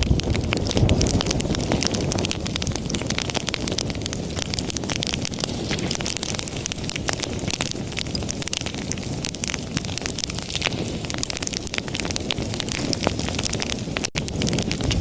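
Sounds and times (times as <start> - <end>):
low rumble: 0.0 - 3.9, 14.2 - 15.0
wood fire crackling and popping: 0.0 - 15.0.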